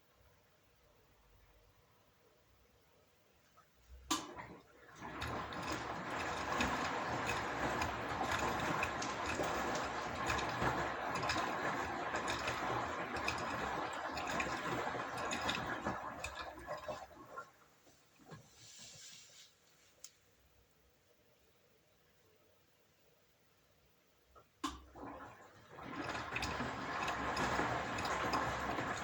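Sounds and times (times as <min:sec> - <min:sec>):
washing machine running: 0:04.0 - 0:18.6, 0:24.6 - 0:29.0.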